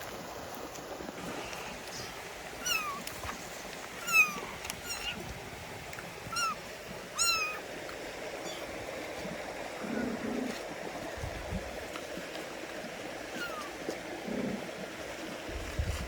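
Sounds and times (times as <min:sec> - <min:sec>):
kitten mewing: 0:02.0 - 0:03.1, 0:04.0 - 0:05.3, 0:06.3 - 0:07.6, 0:13.3 - 0:13.7.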